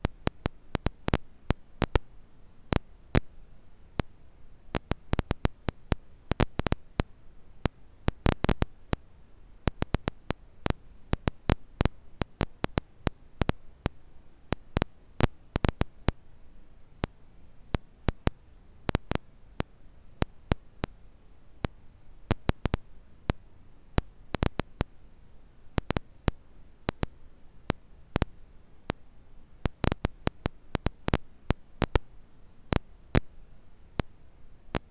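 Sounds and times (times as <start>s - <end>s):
faint steady hiss: 0.0s - 34.9s
campfire crackling and popping: 8.1s - 9.0s, 9.7s - 10.4s, 11.2s - 13.6s, 22.3s - 22.8s, 25.8s - 26.0s, 29.7s - 32.1s.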